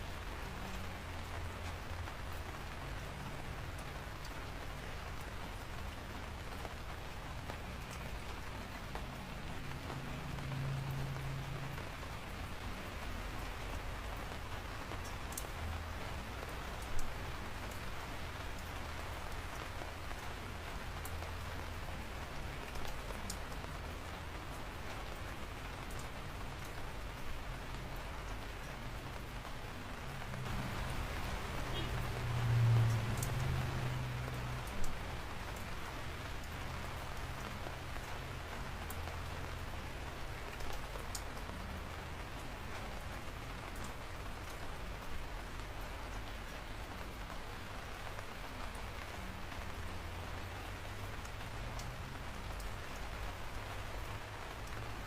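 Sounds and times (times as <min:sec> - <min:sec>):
sharp raindrops striking: 0:00.0 - 0:55.0
steady rain: 0:00.0 - 0:55.0.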